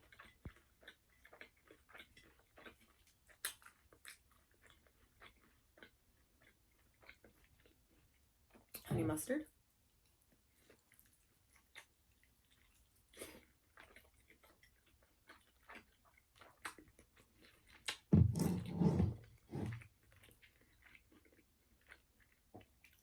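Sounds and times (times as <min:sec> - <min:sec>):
close chewing and mouth sounds: 0:00.0 - 0:18.2, 0:19.1 - 0:23.0.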